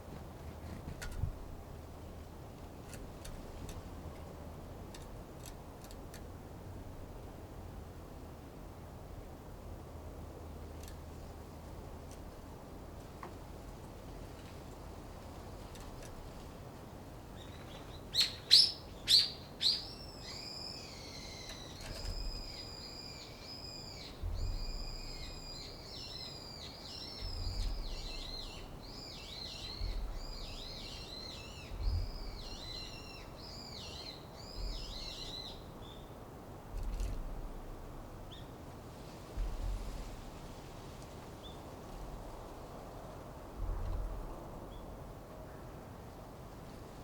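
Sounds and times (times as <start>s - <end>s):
songbird sharp calls: 17.4s - 36.0s
songbird warbling: 17.4s - 36.0s.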